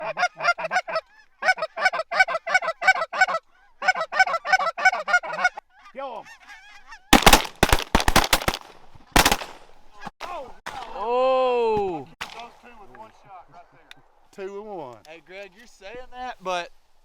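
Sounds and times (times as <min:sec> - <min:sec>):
waterfowl calling rapidly: 0:00.0 - 0:08.2
shotgun shots: 0:07.2 - 0:09.8.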